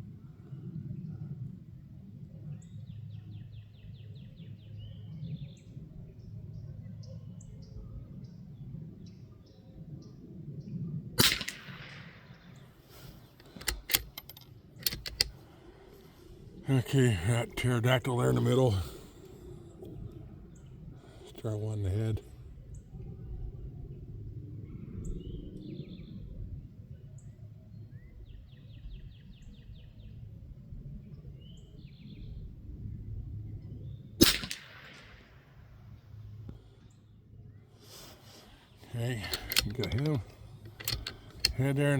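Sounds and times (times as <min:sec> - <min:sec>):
rifle shot with echo: 0:11.2 - 0:12.8, 0:34.2 - 0:35.7
birds chirping faintly: 0:12.2 - 0:34.1, 0:36.2 - 0:41.9
light clicks: 0:13.4 - 0:15.4, 0:39.2 - 0:41.8.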